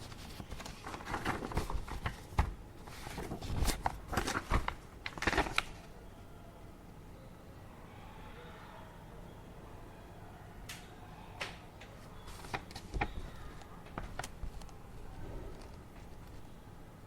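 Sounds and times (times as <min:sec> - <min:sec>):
paper rustling: 0:00.0 - 0:05.9, 0:12.2 - 0:16.6.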